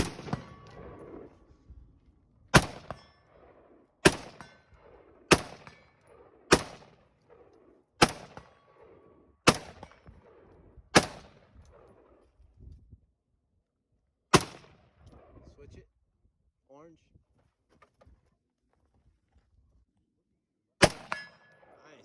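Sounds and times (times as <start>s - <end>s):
rifle shots with echo: 0.0s - 1.7s, 2.5s - 12.2s, 14.3s - 15.3s, 20.8s - 22.0s.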